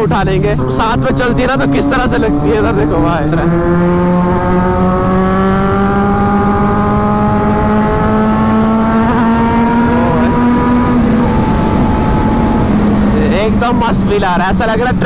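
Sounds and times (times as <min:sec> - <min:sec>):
heavy wind rush: 0:00.0 - 0:15.0
motorcycle engines at speed: 0:00.0 - 0:15.0.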